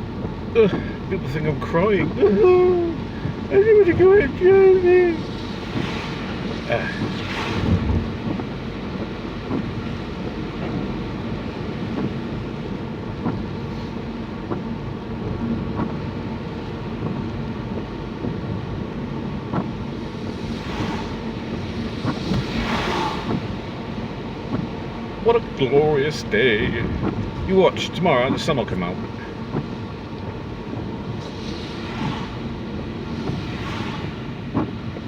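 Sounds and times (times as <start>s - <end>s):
car engine: 0.0s - 35.0s
heavy rain on car: 0.0s - 35.0s
tyres on wet road: 0.0s - 35.0s
brief loud swishes: 7.0s - 8.1s, 33.2s - 34.3s.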